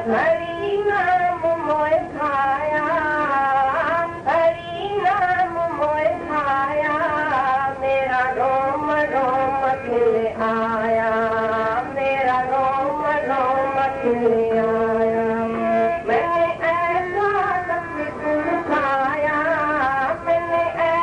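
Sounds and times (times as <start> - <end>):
person singing devotional song: 0.0 - 21.0
sustained accompanying notes: 13.4 - 20.8.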